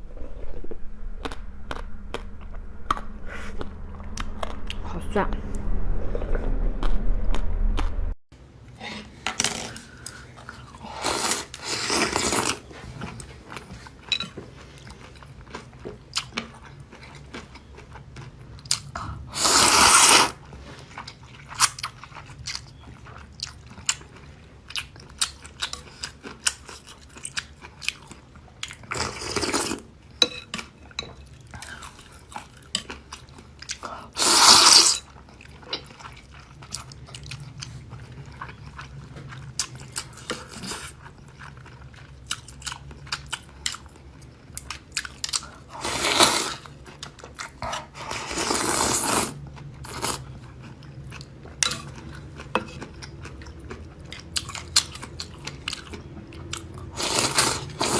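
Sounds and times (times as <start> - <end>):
wet chewing with mouth clicks: 49.6 - 57.9.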